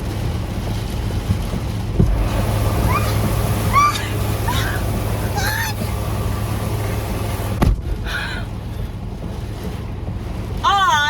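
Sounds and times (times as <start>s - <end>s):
heavy rain pouring: 0.0s - 11.0s
sharp thump: 7.6s - 8.1s.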